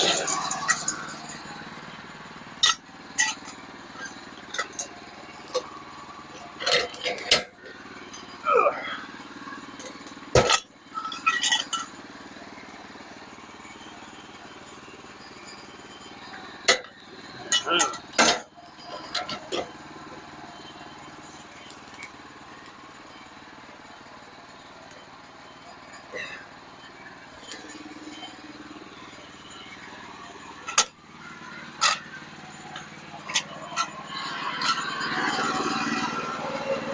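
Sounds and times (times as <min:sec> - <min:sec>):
sawmill engine running: 0:00.0 - 0:36.9.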